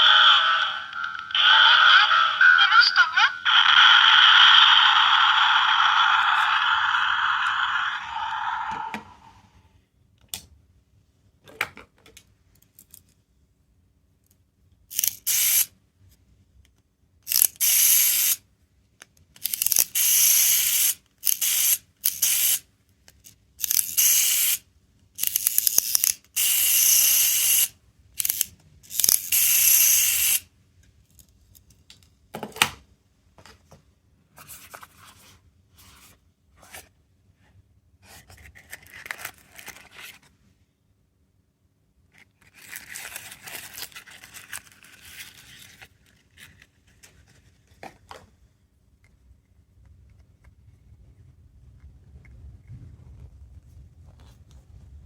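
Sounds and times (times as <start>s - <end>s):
toy hissing spray effect: 0.0s - 9.4s, 15.3s - 15.7s, 17.6s - 18.4s, 19.6s - 22.6s, 23.9s - 24.6s, 26.4s - 28.4s, 29.0s - 30.4s.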